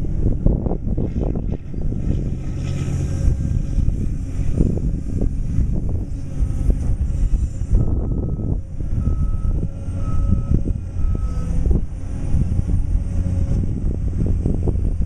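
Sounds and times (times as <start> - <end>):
excavator diesel engine running: 1.8 - 15.0.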